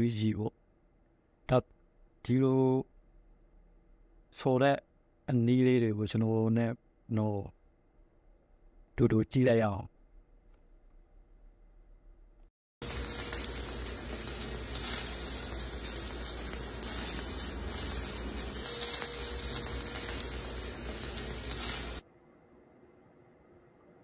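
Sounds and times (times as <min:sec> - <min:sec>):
welding arc crackling sizzle: 0:12.8 - 0:22.0.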